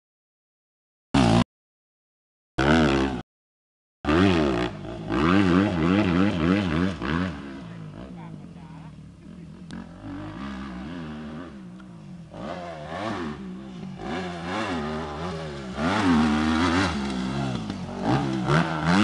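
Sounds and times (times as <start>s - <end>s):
motorbike engine revving: 1.2s - 1.4s, 2.6s - 3.2s, 4.1s - 19.0s.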